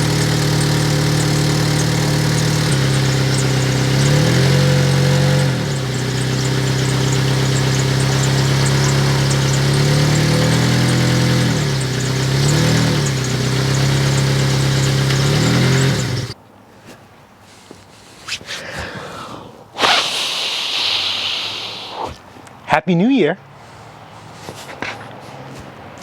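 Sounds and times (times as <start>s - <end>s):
car engine idling with exhaust leak: 0.0s - 16.4s
engine throttle blips: 0.0s - 16.4s.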